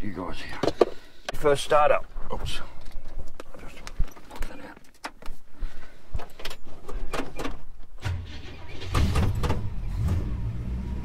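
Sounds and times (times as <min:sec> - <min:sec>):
handling clicks and knocks: 0:00.5 - 0:01.4
car engine cranking and idling: 0:08.0 - 0:11.0.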